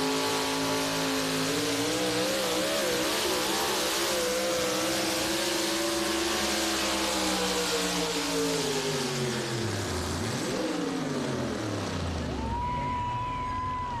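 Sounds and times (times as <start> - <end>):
truck engine winding down: 0.0 - 14.0.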